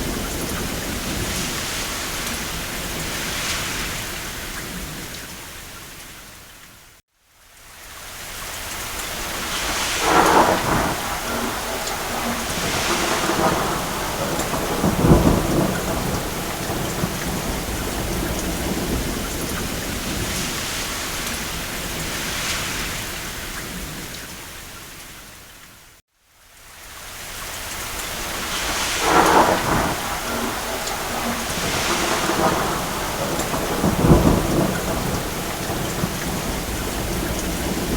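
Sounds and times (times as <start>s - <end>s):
steady rain: 0.0s - 37.9s
rolls of thunder: 9.5s - 23.0s, 28.4s - 37.9s.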